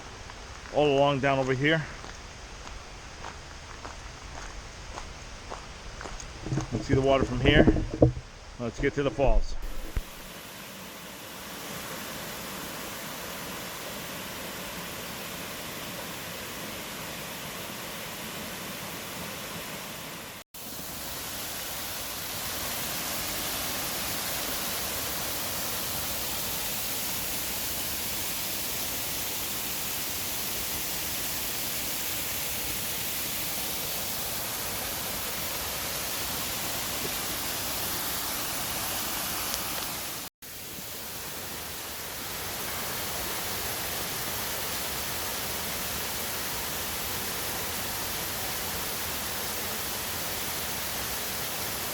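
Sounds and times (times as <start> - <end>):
waterfall rushing: 8.8 - 26.6, 33.4 - 40.3, 41.0 - 51.9.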